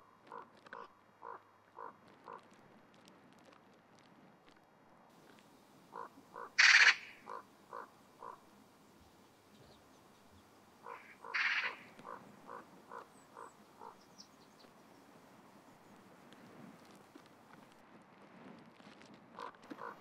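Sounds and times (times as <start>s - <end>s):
bird calling in short notes: 6.0s - 8.4s, 10.8s - 14.3s.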